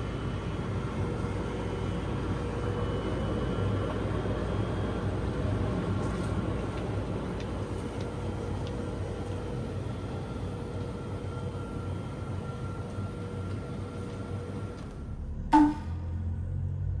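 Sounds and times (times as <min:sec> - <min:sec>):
vehicle rumble and hum: 0:00.0 - 0:17.0.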